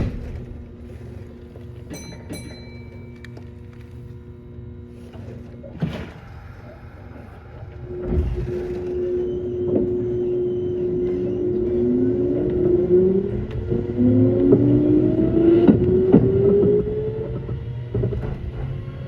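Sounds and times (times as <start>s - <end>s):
low thud: 0.0s - 1.2s
electric train motor tones: 6.4s - 19.0s.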